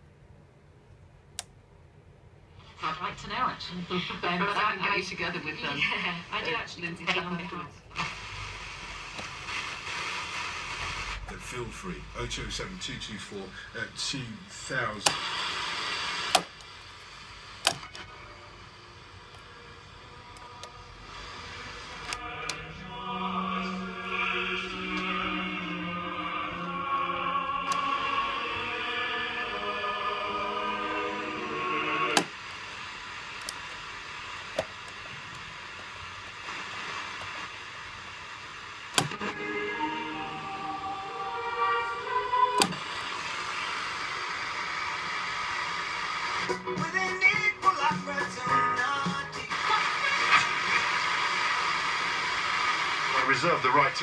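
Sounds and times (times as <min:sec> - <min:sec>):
radio static hiss: 0:02.6 - 0:54.0
radio dial clicks: 0:06.3 - 0:11.4, 0:14.8 - 0:18.1, 0:32.1 - 0:39.4, 0:42.5 - 0:46.5
radio switch clicks: 0:16.2 - 0:16.7, 0:42.6 - 0:43.1.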